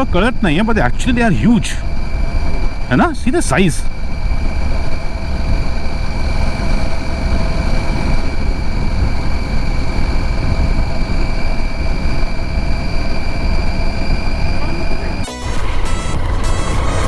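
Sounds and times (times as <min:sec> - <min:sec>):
motorcycle engine rumble: 0:00.0 - 0:17.0
steady high whines: 0:00.0 - 0:17.0
wind rushing over camera: 0:01.1 - 0:15.3.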